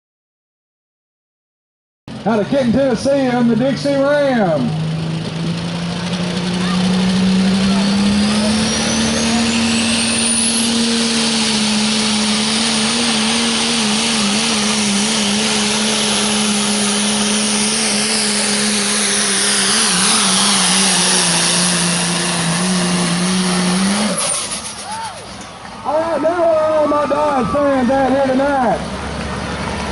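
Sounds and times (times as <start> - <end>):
diesel truck engine full throttle: 2.1 - 29.9
high turbo whistle: 6.6 - 26.0.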